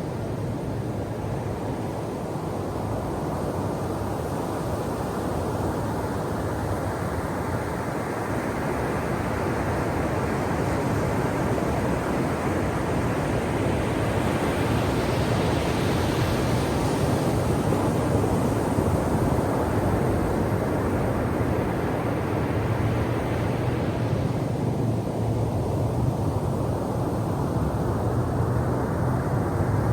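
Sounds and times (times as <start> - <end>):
ocean waves breaking on shore: 6.0 - 29.9.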